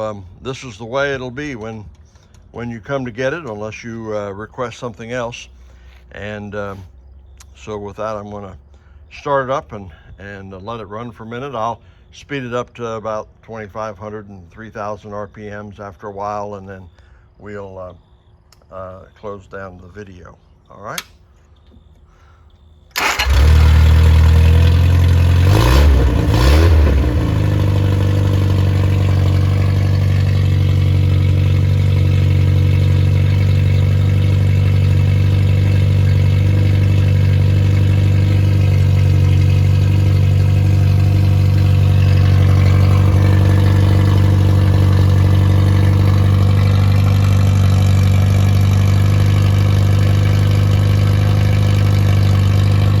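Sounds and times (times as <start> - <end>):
car engine starting and idling: 22.9 - 53.0.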